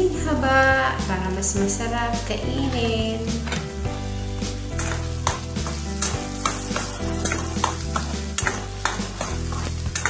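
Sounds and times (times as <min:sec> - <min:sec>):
meat sizzling in a pan: 0:03.9 - 0:10.0
spatula scraping a pan: 0:04.6 - 0:10.0.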